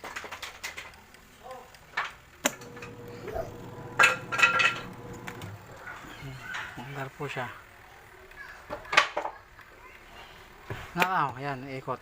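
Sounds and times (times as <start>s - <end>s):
washing machine motor humming: 2.4s - 7.6s
clinks and knocks: 3.9s - 5.5s.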